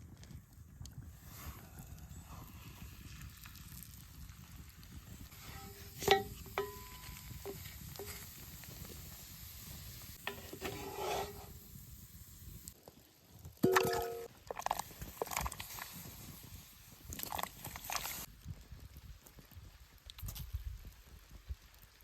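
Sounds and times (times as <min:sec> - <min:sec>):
stirring or scraping: 0:05.3 - 0:09.1, 0:10.1 - 0:11.7
utensil clinking on cookware: 0:05.5 - 0:08.1.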